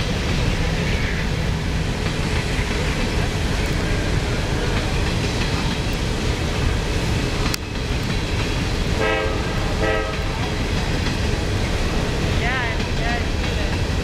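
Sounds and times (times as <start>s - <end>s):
freight train rolling past: 0.0s - 14.0s
train horn toots: 9.0s - 10.4s.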